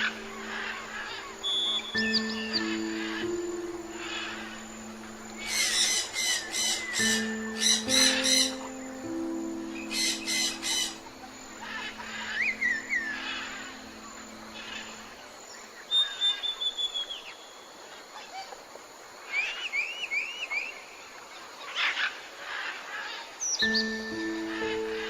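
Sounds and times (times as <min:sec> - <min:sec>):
soft background music: 0:00.0 - 0:15.7, 0:23.6 - 0:25.0
bird chirps and whistles: 0:01.4 - 0:02.8, 0:15.9 - 0:17.4.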